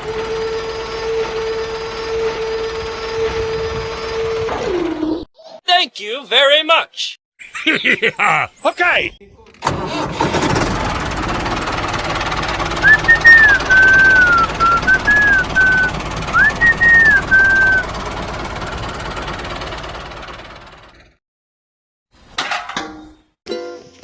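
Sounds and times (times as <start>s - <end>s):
small engine knocking: 9.7s - 21.2s
high whistled tune: 12.8s - 17.9s.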